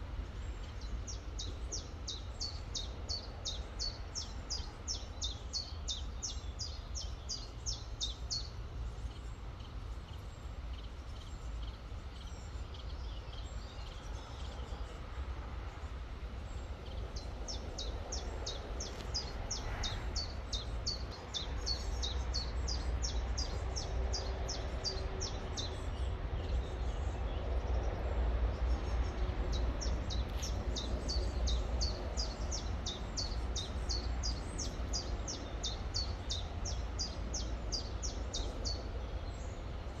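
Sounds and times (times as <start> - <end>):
songbird chirping: 16.3 - 39.9.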